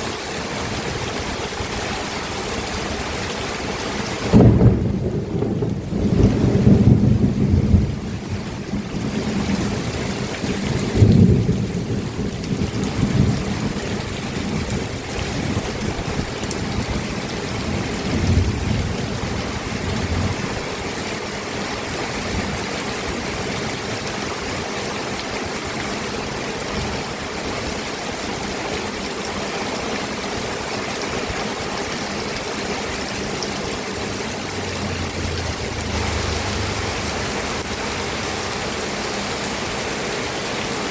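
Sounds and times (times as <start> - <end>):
rain falling: 0.0 - 40.9
thunder rumbles: 4.2 - 20.7, 33.2 - 39.2.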